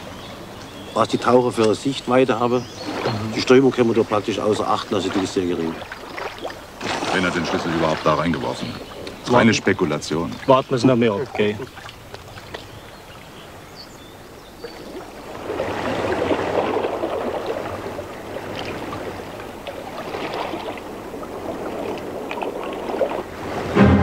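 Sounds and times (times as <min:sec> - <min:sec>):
river water splashing: 0:00.0 - 0:24.0.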